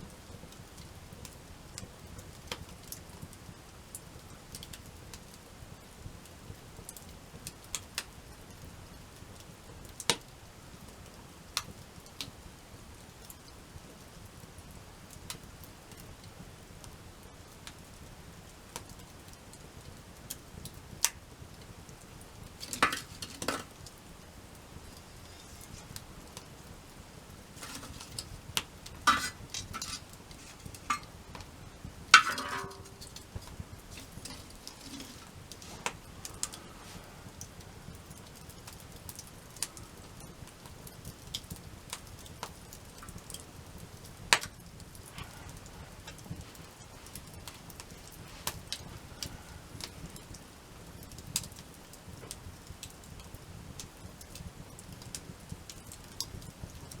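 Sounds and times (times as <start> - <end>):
campfire crackling and popping: 0.0 - 57.0
metal clinking on metal: 29.1 - 31.2, 32.2 - 35.3.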